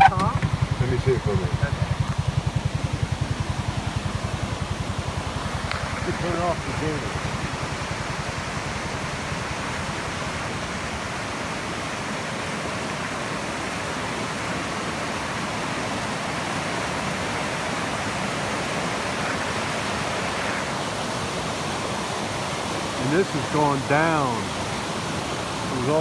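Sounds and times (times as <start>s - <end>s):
low rapid flutter: 0.0s - 12.2s
floodwater rushing in creek: 0.0s - 26.0s.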